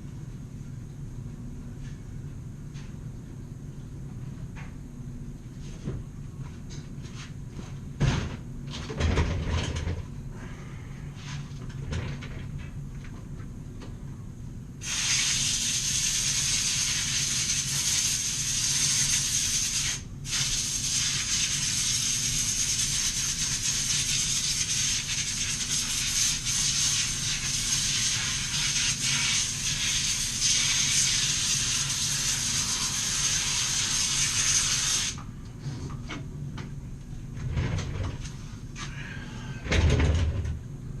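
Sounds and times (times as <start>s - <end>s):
compressed air blow gun hissing: 14.8s - 18.8s, 25.5s - 35.2s.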